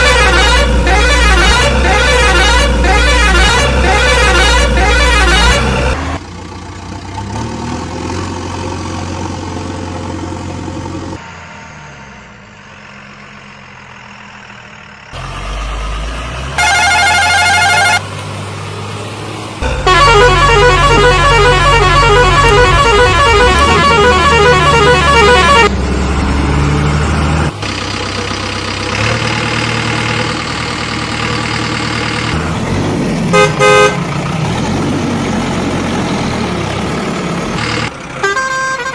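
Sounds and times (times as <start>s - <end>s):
steady horn blast: 0.0s - 6.0s, 16.6s - 18.0s, 19.6s - 25.7s, 33.3s - 34.1s
warbling horn: 0.0s - 6.0s, 16.6s - 18.0s, 19.6s - 25.7s
heavy engines running: 0.0s - 38.9s.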